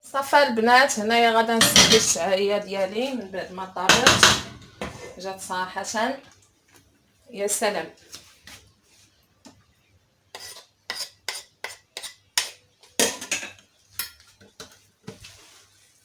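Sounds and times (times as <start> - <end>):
spoon scraping a cooking pot: 1.6 - 5.2, 10.4 - 12.6.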